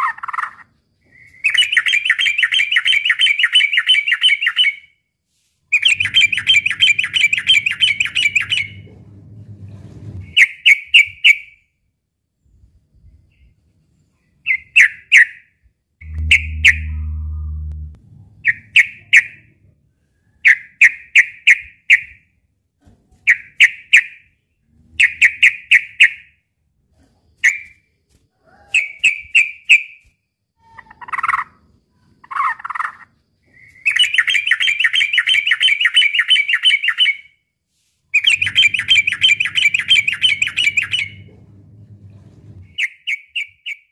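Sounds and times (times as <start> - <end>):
bird sharp chirps: 16.0 - 19.4.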